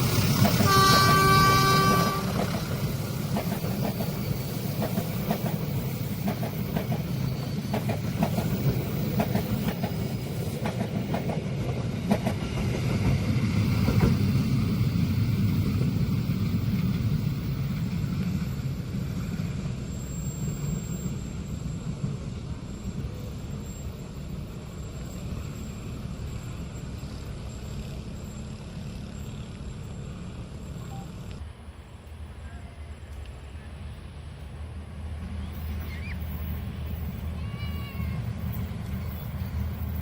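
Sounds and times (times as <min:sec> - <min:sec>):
train wheels clacking over rail joints: 0:00.0 - 0:18.3
low train rumble: 0:00.0 - 0:40.0.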